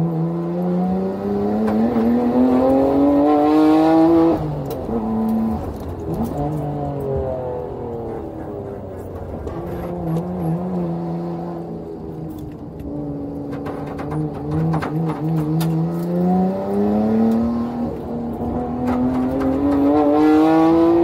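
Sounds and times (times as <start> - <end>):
clicks and knocks: 13.4 - 16.1
car engine revving from inside: 14.6 - 21.0.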